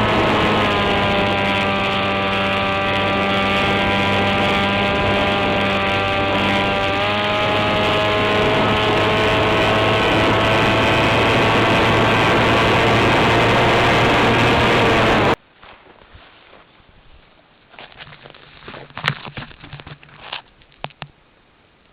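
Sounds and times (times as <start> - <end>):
electric motor propeller whine: 0.0 - 15.4.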